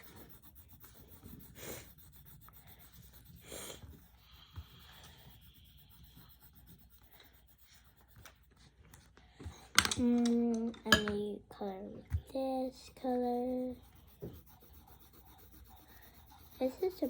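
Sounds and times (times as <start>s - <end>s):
pencil scratching on paper: 0.0s - 9.1s, 12.1s - 17.0s.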